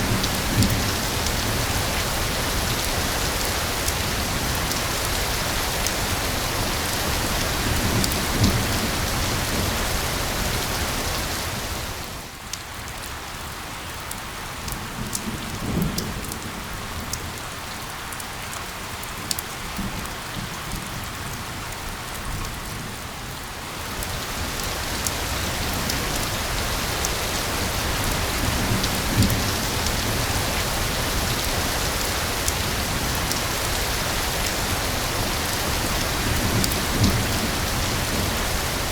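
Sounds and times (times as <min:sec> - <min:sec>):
rain on a hard surface: 0:00.0 - 0:38.9.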